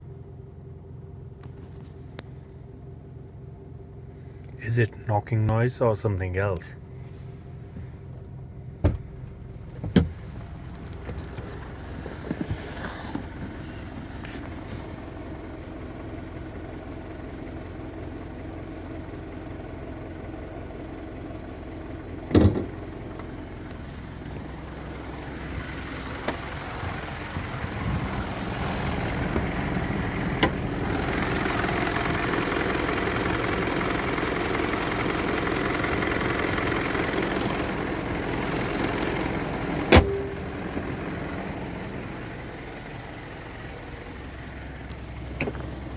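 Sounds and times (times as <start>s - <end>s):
diesel engine idling clatter: 0.0s - 45.9s
sharp engine knocks: 22.3s - 22.8s, 39.8s - 40.9s.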